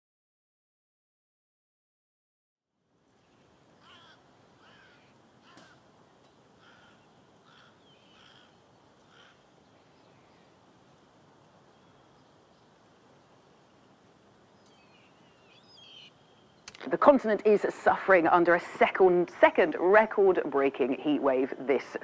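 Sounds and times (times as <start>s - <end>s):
outdoor ambience: 2.7s - 22.0s
bird calling: 3.2s - 10.6s, 14.5s - 16.9s.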